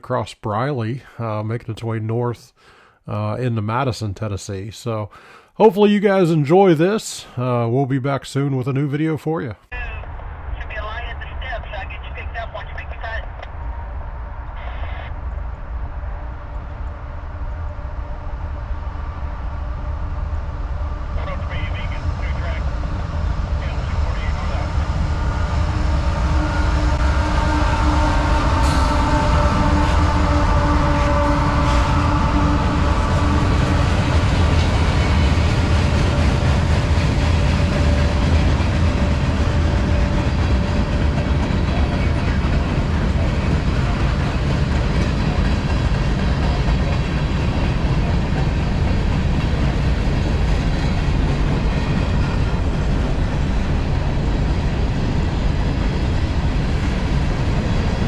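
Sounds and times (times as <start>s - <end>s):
pitched whines: 13.4s - 38.2s
train wheels rumbling on rail: 21.8s - 58.0s.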